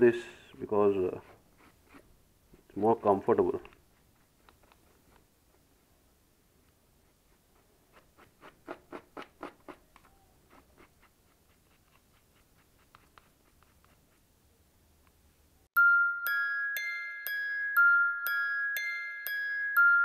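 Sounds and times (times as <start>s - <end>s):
brush scrubbing paper filter: 7.1s - 14.3s
background music with chimes: 15.8s - 20.0s.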